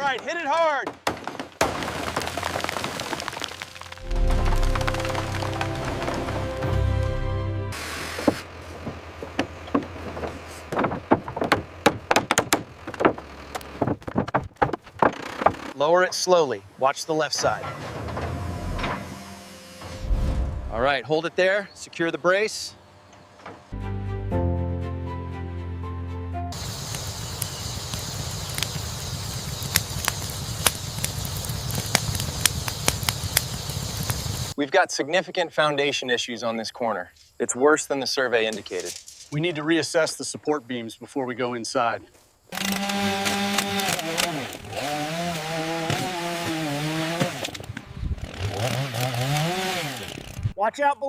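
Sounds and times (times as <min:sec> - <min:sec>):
sharp cracks and snaps: 0:01.1 - 0:06.0, 0:26.8 - 0:34.4, 0:42.5 - 0:44.7
construction knocks and clatters: 0:08.3 - 0:15.8.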